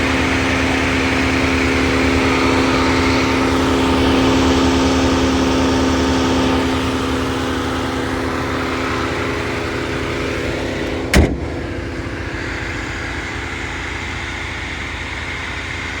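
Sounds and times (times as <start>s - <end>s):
car engine running: 0.0s - 16.0s
sharp thump: 10.8s - 12.0s.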